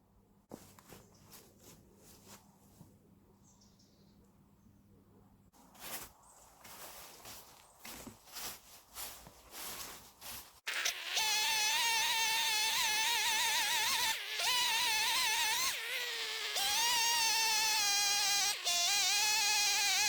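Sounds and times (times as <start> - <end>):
footsteps: 0.5 - 3.0, 5.6 - 10.6
chainsaw cutting log: 10.6 - 20.0.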